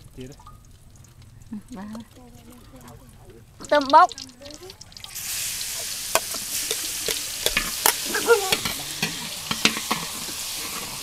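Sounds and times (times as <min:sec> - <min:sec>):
hot oil sizzling in a wok: 0:03.5 - 0:11.0
metal ladles scraping a wok: 0:05.2 - 0:11.0.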